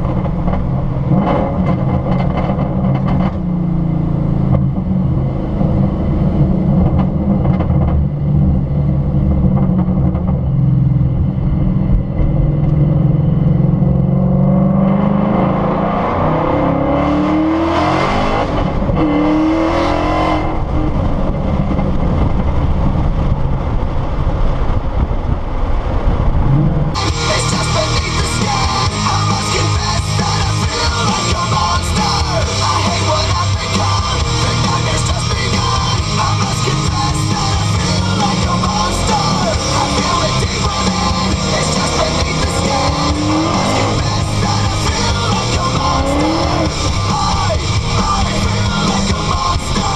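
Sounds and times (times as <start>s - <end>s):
car engine droning and revving: 0.0s - 49.9s
rock music with guitar: 12.2s - 20.7s, 27.0s - 49.9s.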